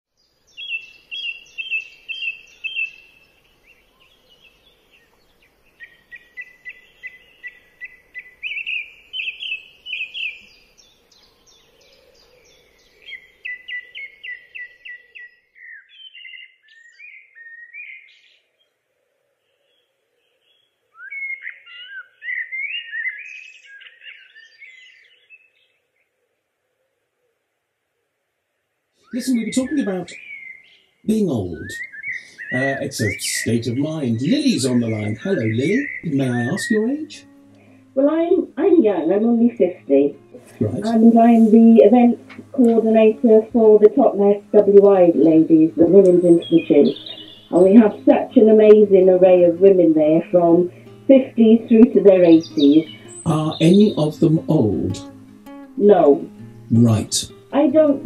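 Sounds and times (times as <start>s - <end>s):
bird chirping and trilling: 0.2s - 18.8s, 19.4s - 26.1s, 29.0s - 58.0s.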